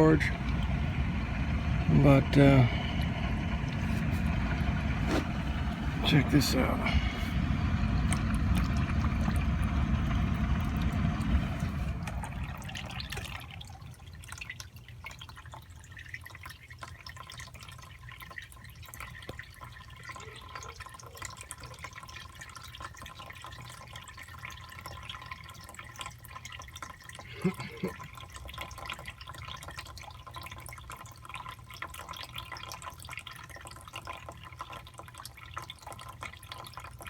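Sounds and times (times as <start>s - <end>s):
loud low rumble: 0.0s - 14.0s
water dripping and pouring: 0.0s - 37.0s.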